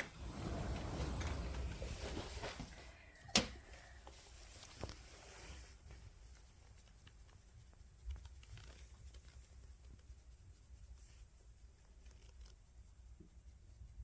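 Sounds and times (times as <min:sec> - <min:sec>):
faint ticks and taps: 0:05.8 - 0:10.1.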